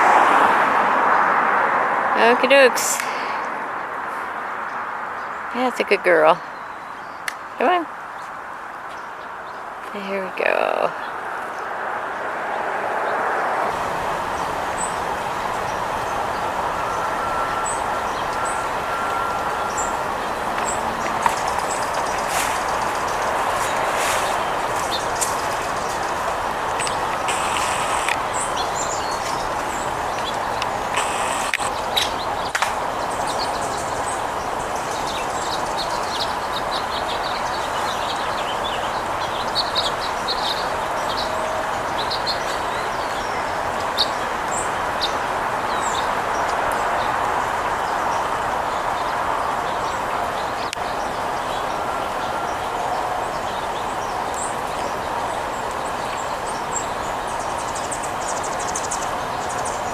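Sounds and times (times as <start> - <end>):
small birds chirping: 2.1 - 11.7, 13.1 - 59.9
steady background hiss: 13.7 - 40.9.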